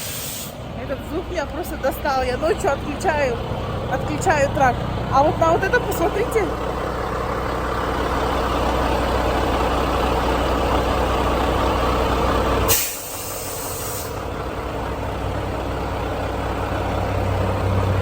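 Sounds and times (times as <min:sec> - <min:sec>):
sharp hiss of air: 0:00.0 - 0:00.6, 0:12.7 - 0:14.2
diesel truck engine idling: 0:00.0 - 0:18.0.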